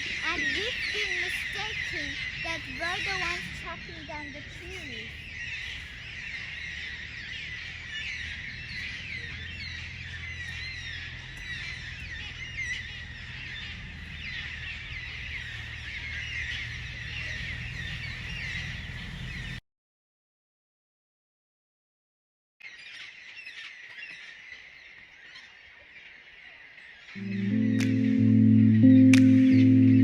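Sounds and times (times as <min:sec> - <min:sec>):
flock of birds chattering: 0:00.0 - 0:19.6
low steady rumble: 0:27.2 - 0:30.0.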